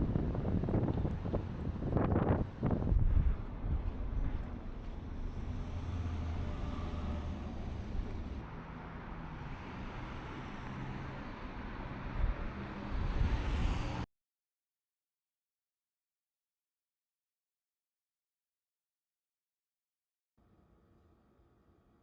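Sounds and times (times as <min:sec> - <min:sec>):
vehicles passing on street: 0:00.0 - 0:14.1.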